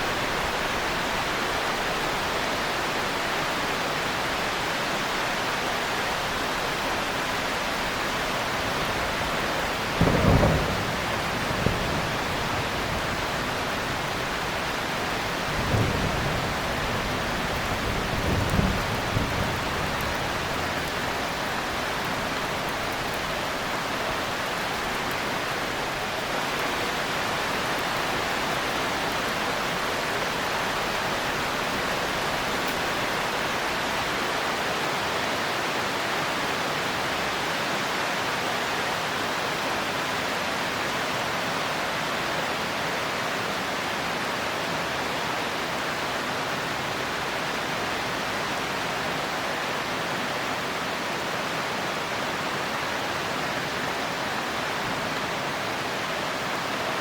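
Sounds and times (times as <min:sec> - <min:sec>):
heavy rain: 0:00.0 - 0:57.0
low thunder rumbles: 0:08.5 - 0:26.0
thunder clap: 0:09.6 - 0:23.4.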